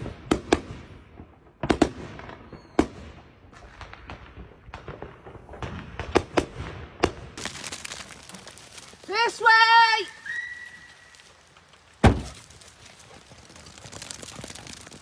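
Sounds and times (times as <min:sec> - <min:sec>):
firecracker bangs and pops: 0:00.0 - 0:09.0, 0:11.9 - 0:12.7.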